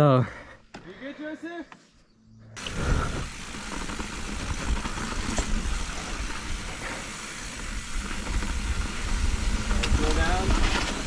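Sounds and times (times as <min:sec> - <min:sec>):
bike tyre rumble: 0:02.6 - 0:11.0.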